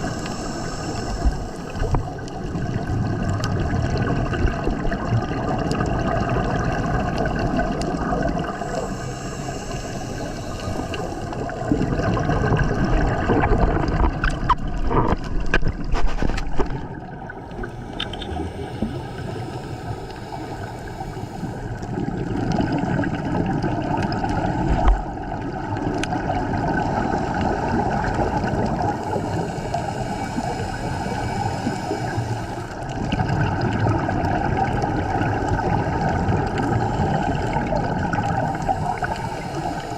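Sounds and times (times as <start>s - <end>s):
steady hum: 0.0s - 2.5s, 16.0s - 23.1s, 26.8s - 33.0s
underwater breath bubbling: 0.0s - 39.9s.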